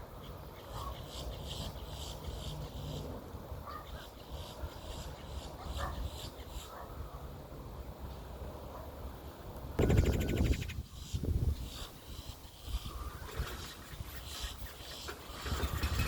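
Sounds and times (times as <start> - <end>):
woodpecker calling: 9.8 - 16.0.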